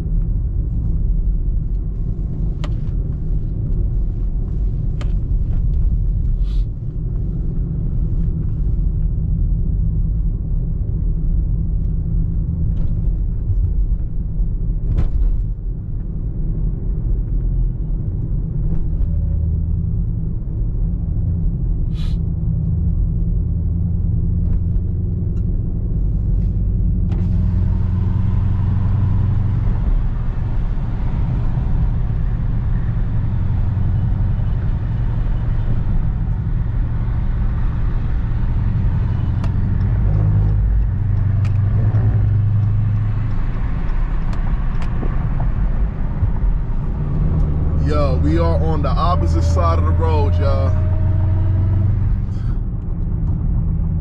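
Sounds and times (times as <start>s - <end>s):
engine and road rumble: 0.0s - 54.0s.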